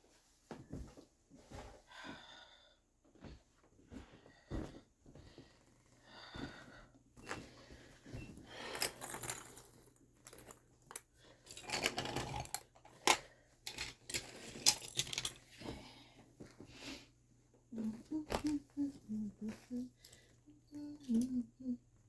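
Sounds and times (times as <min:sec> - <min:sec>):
small objects clicking and clattering: 0:08.6 - 0:15.6.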